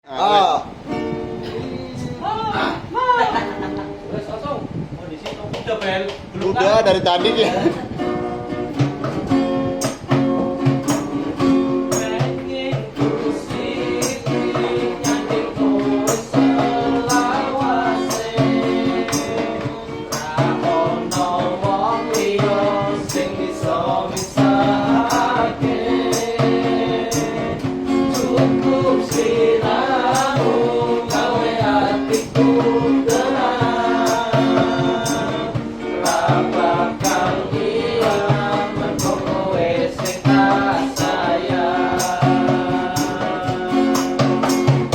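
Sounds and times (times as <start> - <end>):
steady percussive beat: 8.7 - 44.9
people singing pop song: 9.0 - 44.9.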